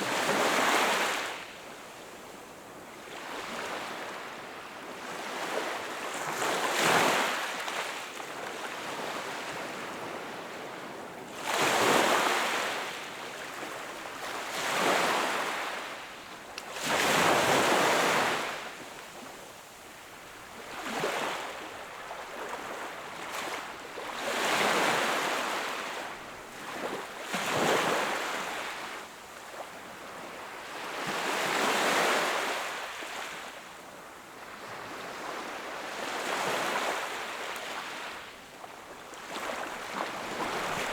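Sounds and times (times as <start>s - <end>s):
sea waves breaking on shore: 16.7s - 19.3s, 39.1s - 40.9s.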